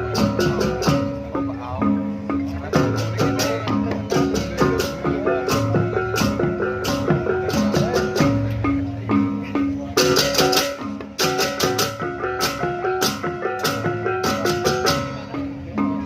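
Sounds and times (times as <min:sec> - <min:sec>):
plucked-string melody: 0:00.0 - 0:16.0
steady percussion beat: 0:00.0 - 0:16.0.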